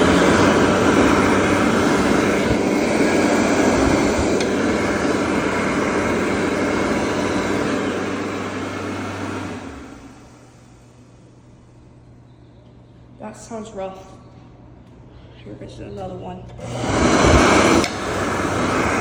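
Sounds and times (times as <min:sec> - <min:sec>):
hand dryer blowing air: 0:00.0 - 0:11.2, 0:16.6 - 0:19.0
low motor hum: 0:00.0 - 0:19.0.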